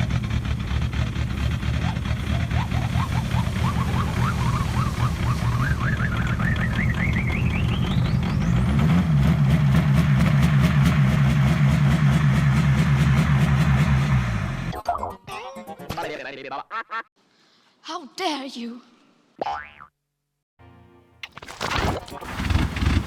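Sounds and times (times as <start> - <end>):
diesel engine rumbling: 0.0 - 13.5.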